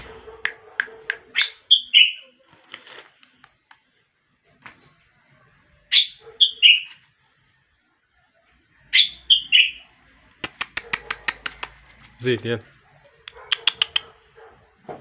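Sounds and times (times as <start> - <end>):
bird chirps: 1.2 - 2.4, 5.9 - 7.0, 8.8 - 9.9
bird whistled phrases: 1.3 - 2.3, 5.9 - 6.9, 8.9 - 9.8.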